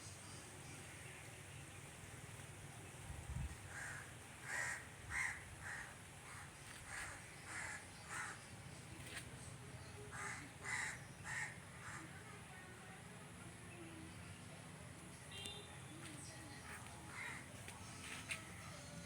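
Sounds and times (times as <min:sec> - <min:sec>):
crow cawing: 0:03.7 - 0:08.4, 0:10.1 - 0:12.1, 0:17.1 - 0:17.4.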